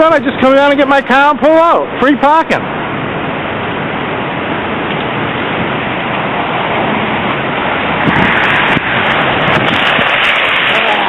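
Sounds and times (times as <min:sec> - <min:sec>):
snowstorm rushing: 0:00.0 - 0:11.0.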